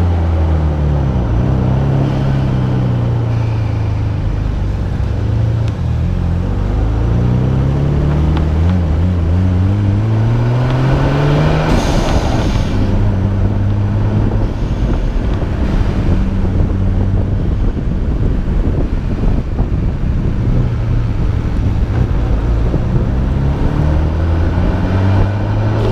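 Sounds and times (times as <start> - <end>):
car engine revving: 0.0 - 25.9.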